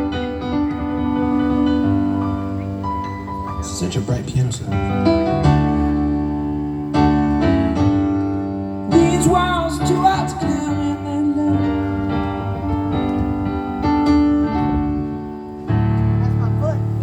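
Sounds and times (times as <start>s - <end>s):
keyboard piano chords: 0.0s - 17.0s
wavering vocal line: 8.9s - 12.6s.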